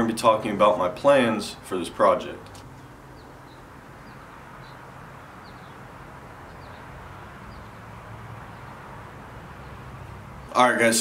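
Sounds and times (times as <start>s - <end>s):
small bird chirping: 2.7s - 10.6s.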